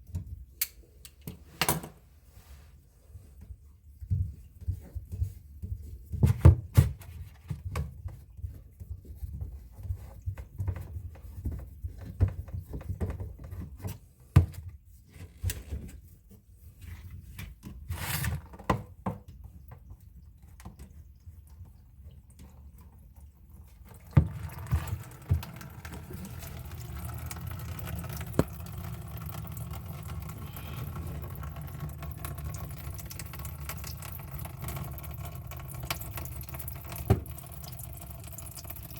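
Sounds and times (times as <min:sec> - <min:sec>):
running water rushing: 0:23.9 - 0:35.2
knocks and clicks of sink drain: 0:24.0 - 0:33.4, 0:36.7 - 0:37.6.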